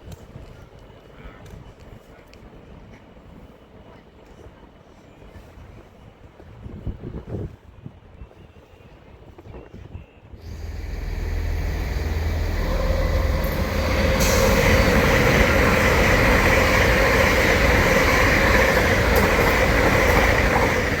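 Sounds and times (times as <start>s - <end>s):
train passing: 10.4s - 21.0s
wheels rushing on rails: 10.4s - 21.0s.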